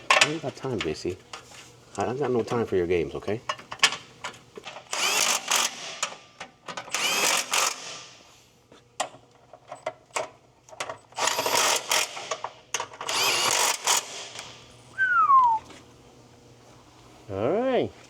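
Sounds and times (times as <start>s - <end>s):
power tool driving bolts: 4.7s - 8.2s, 11.2s - 14.6s.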